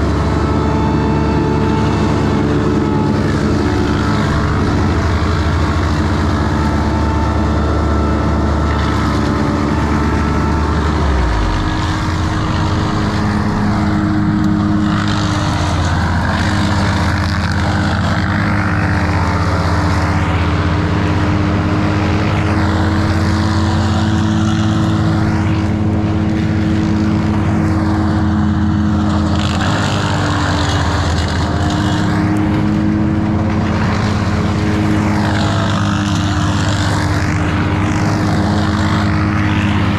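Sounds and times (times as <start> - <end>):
rushing noise: 0.0 - 18.6
large engine running: 0.0 - 39.9.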